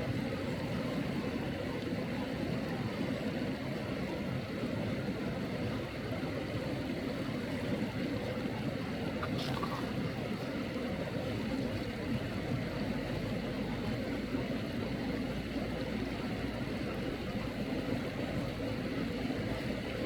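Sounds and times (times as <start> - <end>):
stream water rushing: 5.5 - 20.0.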